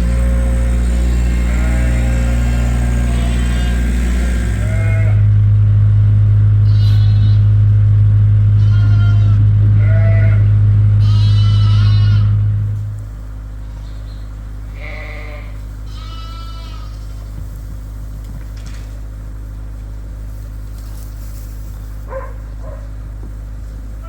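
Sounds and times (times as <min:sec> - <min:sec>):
sheep and lambs bleating: 0:00.0 - 0:05.3, 0:06.6 - 0:07.6, 0:08.5 - 0:12.5, 0:14.6 - 0:17.4
skid steer engine droning: 0:00.0 - 0:24.0.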